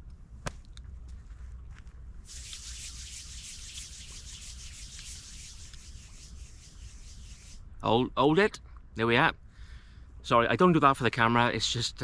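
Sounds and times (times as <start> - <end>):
clothing rubbing on microphone: 2.2 - 7.6.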